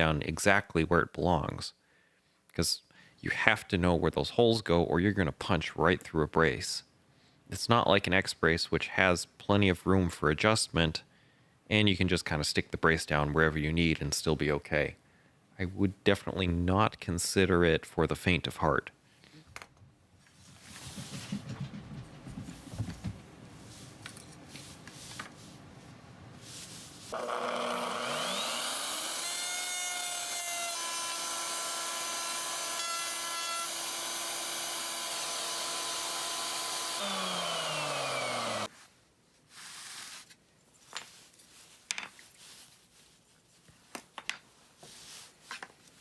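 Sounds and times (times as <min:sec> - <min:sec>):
wood being handled and rubbed: 0:20.2 - 0:27.2
woodworking power tool whining: 0:27.1 - 0:38.7.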